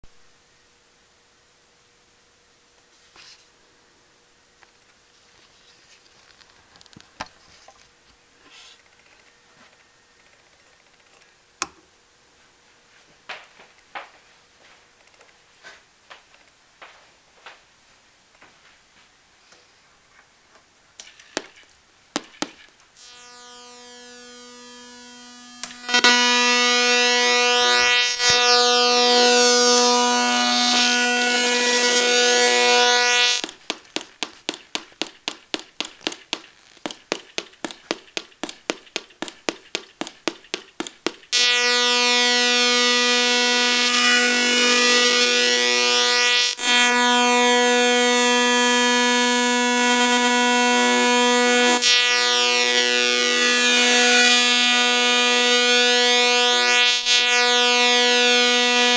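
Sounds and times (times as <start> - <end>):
buzzy electronic tone: 23.0 - 33.5, 41.3 - 58.9
fast even clicks: 33.4 - 41.4.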